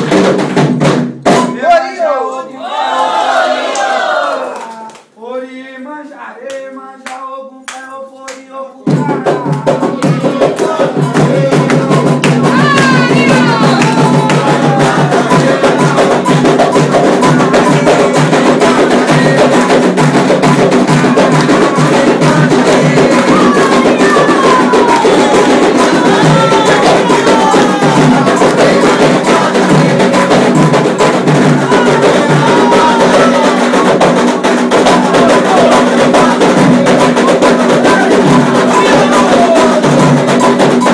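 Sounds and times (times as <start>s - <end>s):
fast ritual drumming: 0.0s - 4.3s, 7.5s - 40.9s
voices chanting: 1.6s - 5.9s, 8.7s - 40.9s
handclapping: 3.7s - 5.2s, 6.4s - 8.5s, 9.4s - 15.5s
bright struck percussion: 8.9s - 40.9s.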